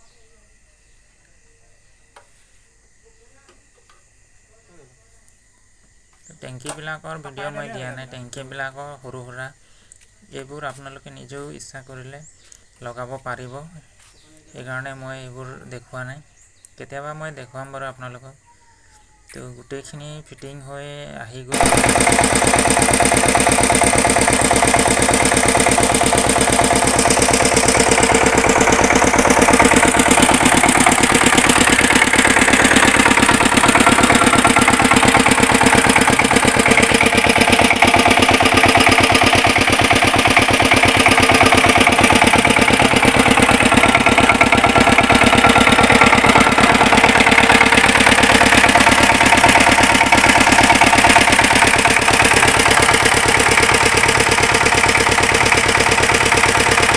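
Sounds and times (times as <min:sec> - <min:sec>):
diesel tiller engine running: 0:21.5 - 0:56.9.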